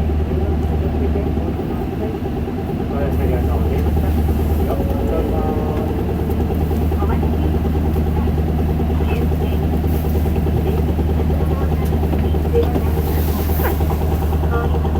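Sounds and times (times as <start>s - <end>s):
bus diesel engine running: 0.0s - 14.9s.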